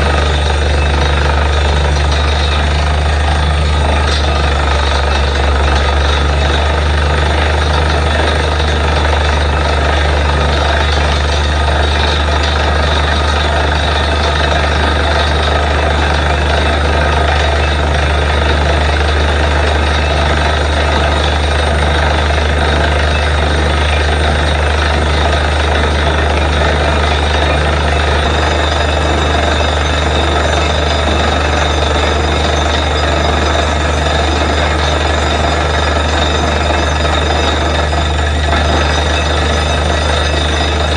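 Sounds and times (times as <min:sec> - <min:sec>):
drilling rig running: 0:00.0 - 0:40.9.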